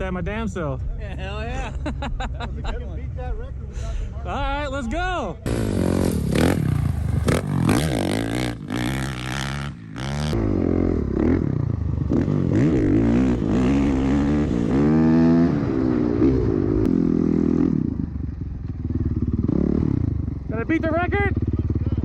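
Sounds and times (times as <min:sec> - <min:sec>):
dirt bike engine revving: 0:05.4 - 0:22.0.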